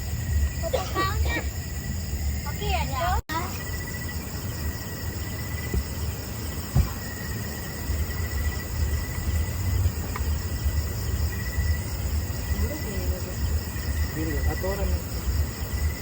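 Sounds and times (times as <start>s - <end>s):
crickets trilling: 0.0s - 16.0s
thump: 5.7s - 6.0s, 6.7s - 7.2s.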